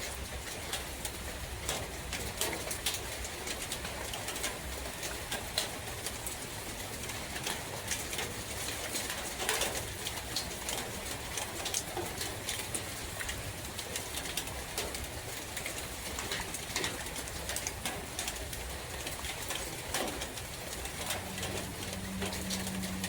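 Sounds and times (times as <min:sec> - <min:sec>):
steady rain in forest: 0:00.0 - 0:23.0
sharp water drips: 0:07.0 - 0:23.0.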